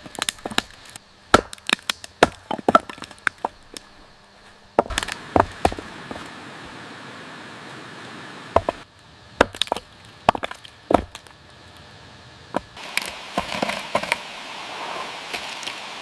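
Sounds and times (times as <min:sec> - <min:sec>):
wood cracking and snapping: 0:00.0 - 0:03.9, 0:04.8 - 0:05.8.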